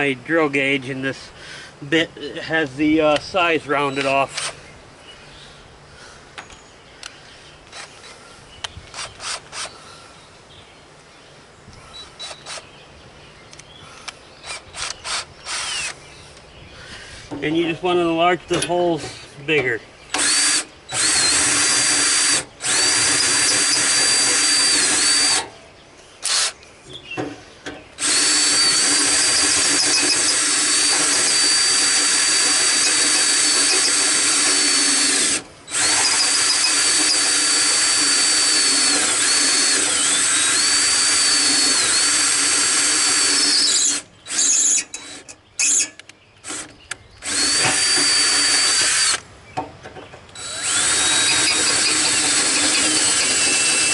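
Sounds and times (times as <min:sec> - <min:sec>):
electric drill whining: 0:08.9 - 0:09.8, 0:14.5 - 0:16.0, 0:20.1 - 0:25.5, 0:26.2 - 0:26.6, 0:28.0 - 0:49.2, 0:50.4 - 0:53.9.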